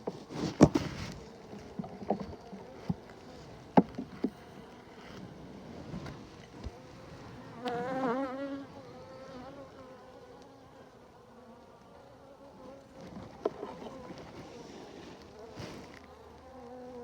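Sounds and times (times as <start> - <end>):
honeybees buzzing: 1.2 - 17.0
bee buzzing close by: 6.7 - 17.0.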